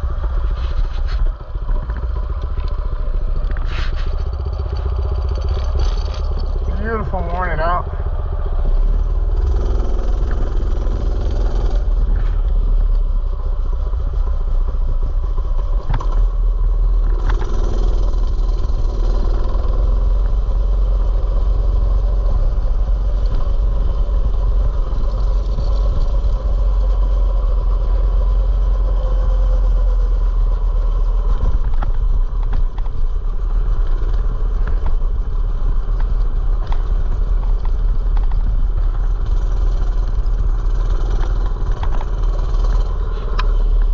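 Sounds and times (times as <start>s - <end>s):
mini bike engine running: 9.3s - 43.9s.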